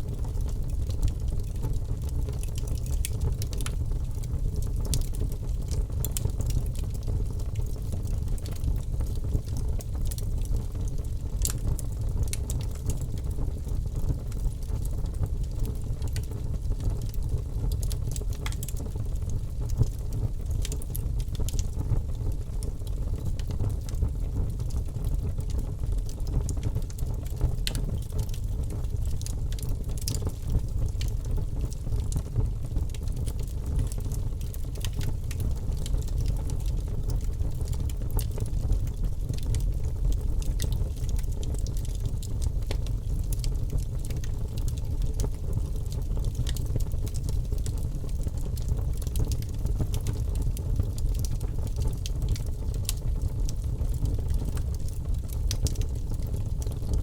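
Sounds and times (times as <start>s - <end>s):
logs burning in a fireplace: 0.0s - 57.0s.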